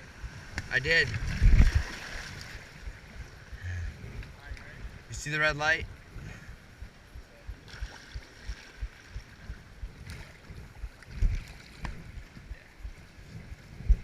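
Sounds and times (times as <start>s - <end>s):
water and wind hiss: 0.0s - 14.0s.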